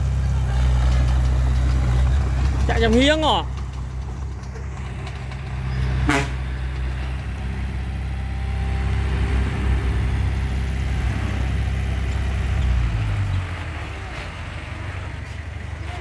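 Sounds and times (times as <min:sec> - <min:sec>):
bulldozer diesel engine running: 0:00.0 - 0:16.0.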